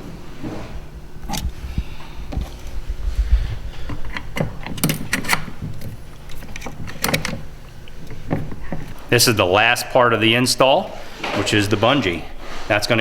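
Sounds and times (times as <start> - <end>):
clicks and knocks of parts fitted: 3.8 - 9.1.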